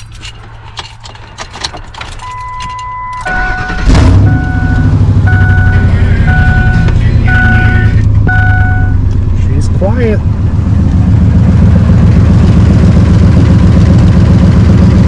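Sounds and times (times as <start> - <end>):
engine starter cranking: 1.7 - 4.4
dashboard chime beeping: 2.2 - 9.0
truck engine idling: 3.3 - 15.0.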